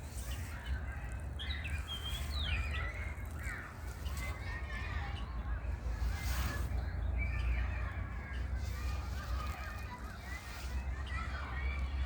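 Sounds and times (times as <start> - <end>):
birds chirping and whistling: 0.2 - 3.5.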